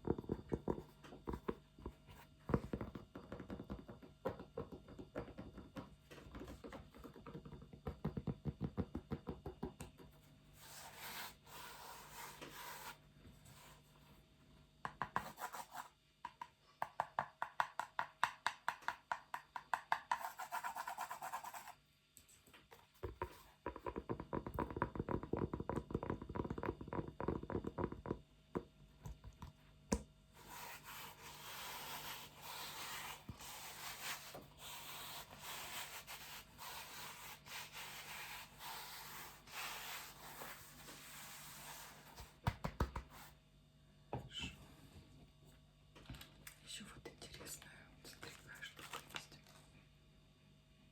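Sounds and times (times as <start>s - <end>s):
dull strokes: 30.4s - 42.2s
scratching and rubbing: 30.4s - 42.3s.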